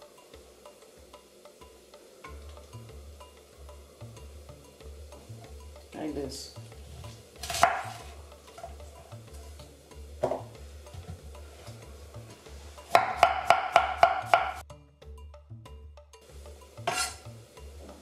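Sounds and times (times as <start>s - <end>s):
knife chopping cabbage: 7.4s - 8.1s, 12.9s - 14.6s
knock on cutting board: 10.2s - 11.2s.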